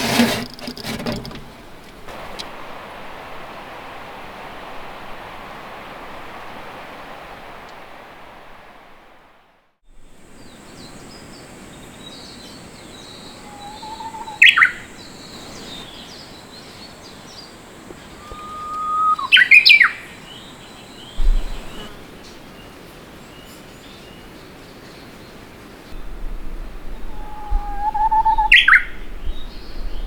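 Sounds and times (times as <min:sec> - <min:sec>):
songbird singing: 0:09.9 - 0:30.0.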